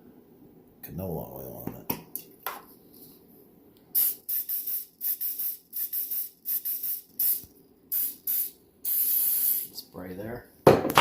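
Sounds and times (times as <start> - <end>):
cooking spray hissing squirts: 4.0 - 9.8.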